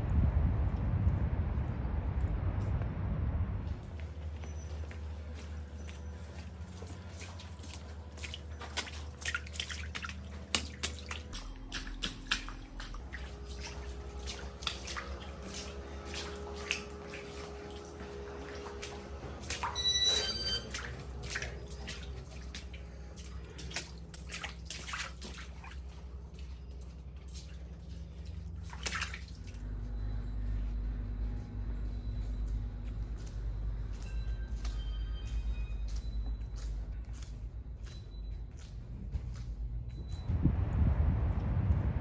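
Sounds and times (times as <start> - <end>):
low steady hum: 0.0 - 42.0
water dripping and splashing: 3.6 - 29.7.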